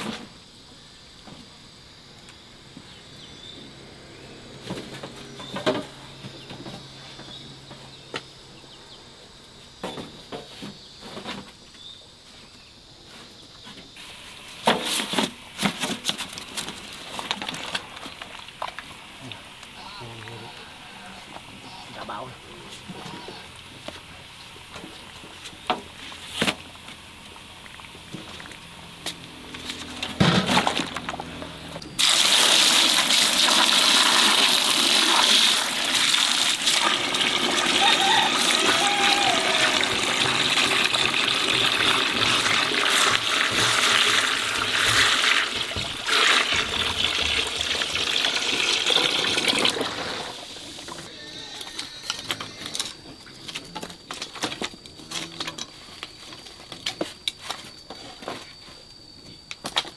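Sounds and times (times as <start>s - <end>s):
water gushing: 32.0s - 51.0s.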